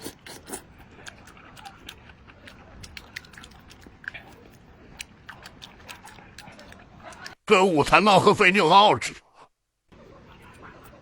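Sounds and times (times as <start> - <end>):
person eating noodles: 0.0 - 7.4.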